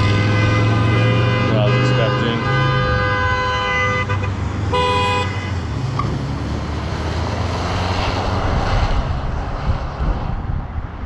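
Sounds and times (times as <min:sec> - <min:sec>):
car horn honk: 0:00.0 - 0:05.6
road traffic: 0:00.0 - 0:11.0
wind noise: 0:07.4 - 0:11.0.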